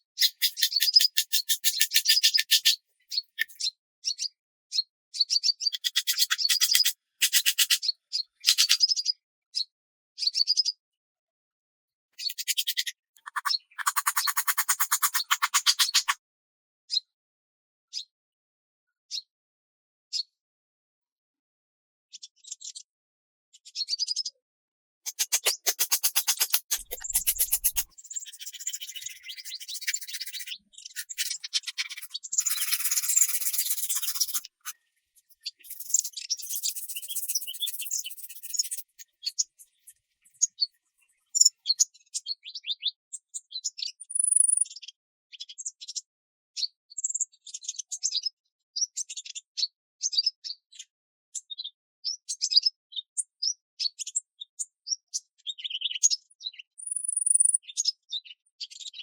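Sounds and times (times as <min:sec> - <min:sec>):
birds chirping and calling: 0:00.2 - 0:04.2, 0:05.2 - 0:09.1, 0:12.2 - 0:16.2, 0:25.1 - 0:40.7
high bird whistles: 0:25.1 - 0:34.7, 0:35.6 - 0:38.8.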